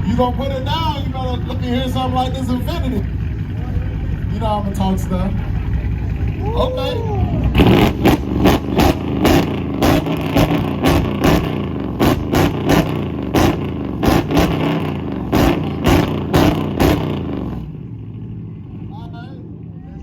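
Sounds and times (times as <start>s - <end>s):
engine droning: 0.0s - 20.0s
exhaust pops and bangs: 7.5s - 17.7s.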